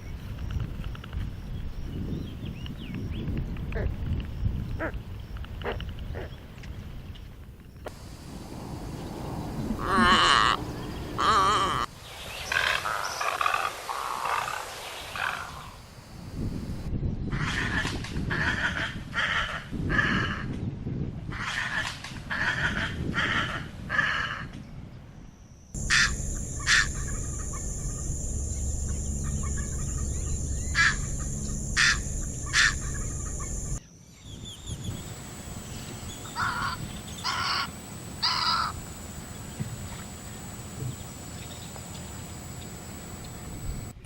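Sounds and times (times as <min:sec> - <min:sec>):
wild birds calling: 0:07.9 - 0:15.9, 0:25.8 - 0:33.8, 0:34.7 - 0:44.0
high-pitched hum: 0:25.8 - 0:33.8, 0:34.8 - 0:44.0.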